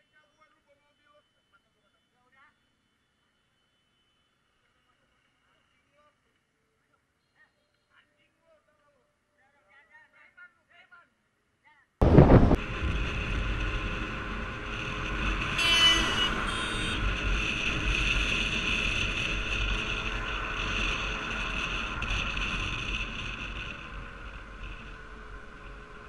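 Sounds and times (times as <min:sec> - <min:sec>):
road and wind noise: 0:12.0 - 0:26.0
vehicle running: 0:12.0 - 0:26.0.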